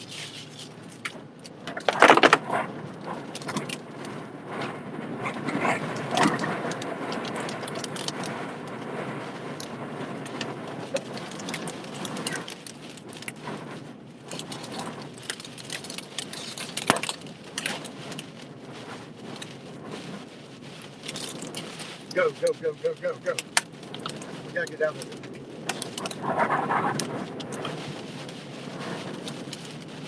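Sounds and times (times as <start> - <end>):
tornado winds and rain: 0.0 - 30.0.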